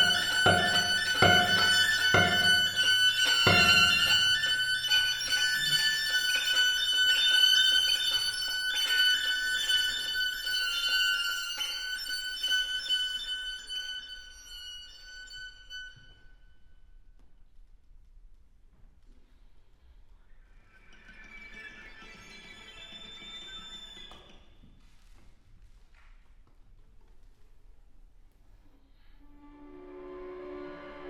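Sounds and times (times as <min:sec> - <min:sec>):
high held violin tones: 0:00.0 - 0:17.0, 0:20.6 - 0:25.1, 0:29.0 - 0:31.0.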